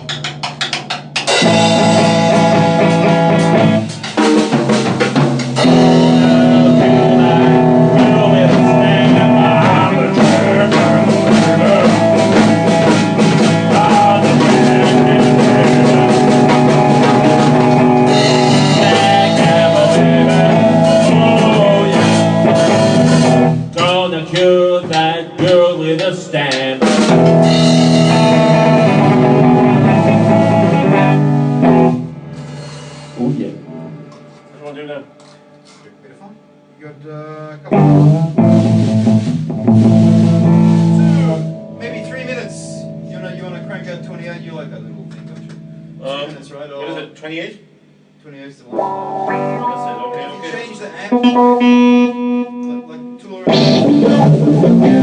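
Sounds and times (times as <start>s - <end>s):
drum kit: 0.0s - 35.9s, 37.5s - 46.4s, 48.7s - 55.0s
blues guitar: 0.0s - 46.5s, 47.9s - 55.0s.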